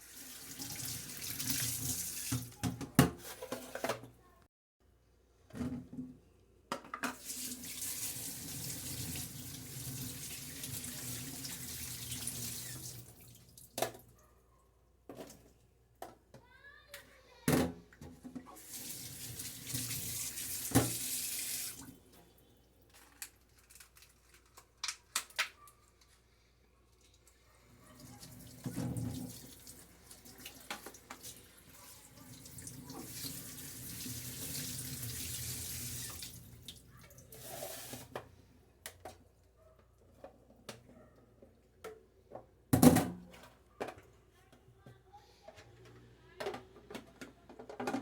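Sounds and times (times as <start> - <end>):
water tap running into sink: 0.0 - 2.6, 7.2 - 13.6, 18.6 - 21.9, 28.0 - 38.0.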